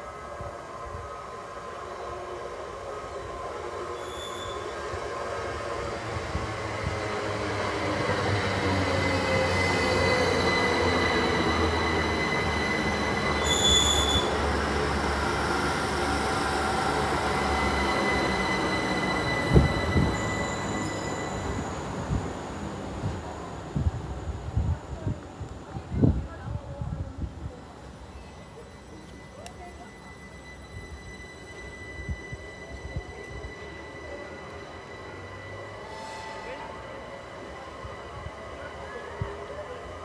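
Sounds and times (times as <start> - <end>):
high-pitched train tones: 0.0 - 25.1, 27.5 - 40.0
train rumble: 4.6 - 40.0.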